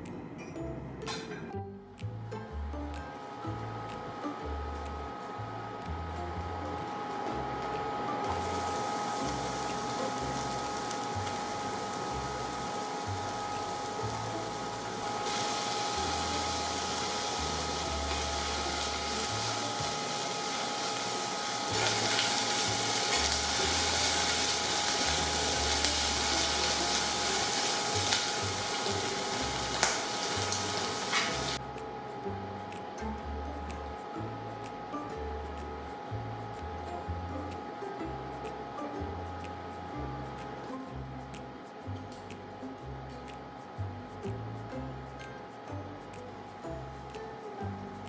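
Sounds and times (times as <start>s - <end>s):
quiet background music: 0.0s - 48.0s
food sizzling in hot oil: 8.2s - 31.6s.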